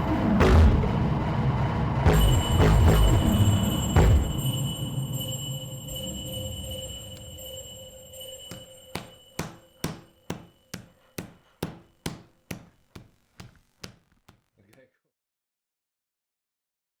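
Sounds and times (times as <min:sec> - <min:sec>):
knocking percussion strikes: 0:02.1 - 0:04.6, 0:08.4 - 0:14.5
faint sustained tones: 0:02.2 - 0:11.6.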